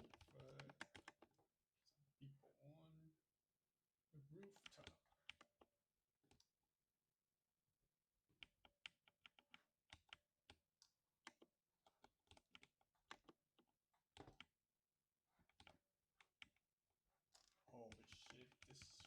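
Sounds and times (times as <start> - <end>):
keyboard typing: 0.0 - 1.3, 14.2 - 14.5, 17.8 - 19.0.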